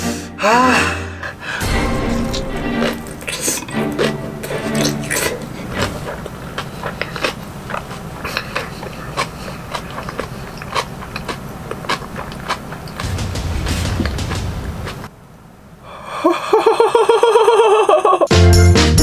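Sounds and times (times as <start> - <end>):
wet chewing: 1.3 - 15.1.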